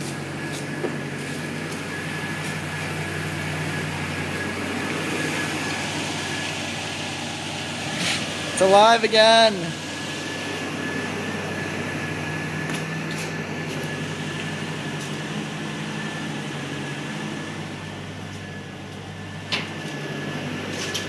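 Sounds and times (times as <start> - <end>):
engine idling: 0.0 - 21.0
high whine: 0.0 - 21.0.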